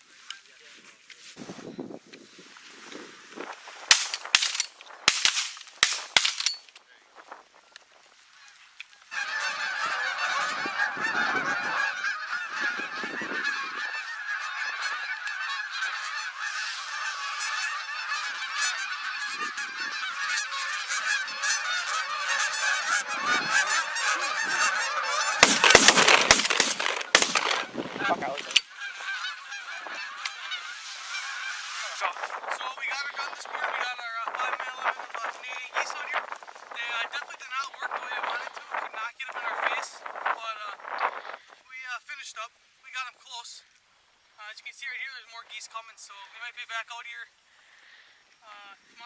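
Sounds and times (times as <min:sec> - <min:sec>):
geese honking: 0:08.3 - 0:41.4.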